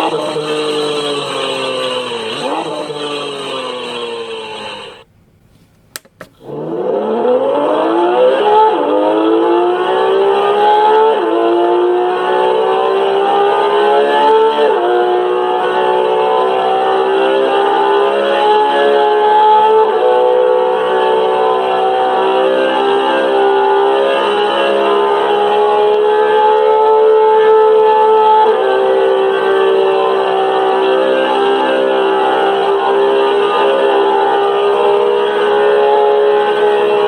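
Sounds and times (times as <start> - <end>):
sports car engine accelerating: 0.0 - 5.0, 6.4 - 37.0
sports car engine running: 0.0 - 7.2
sharp clicks: 5.7 - 6.5.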